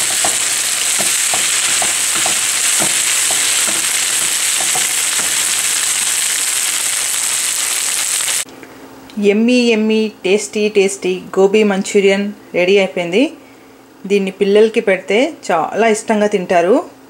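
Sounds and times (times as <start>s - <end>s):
wooden spatula knocking on pan: 0.0s - 6.1s
vegetables sizzling in a pan: 0.0s - 8.5s.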